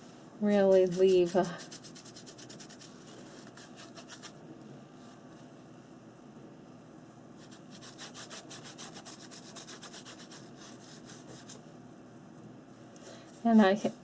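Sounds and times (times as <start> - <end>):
paintbrush scrubbing on paper: 0.7 - 4.4, 7.4 - 11.6.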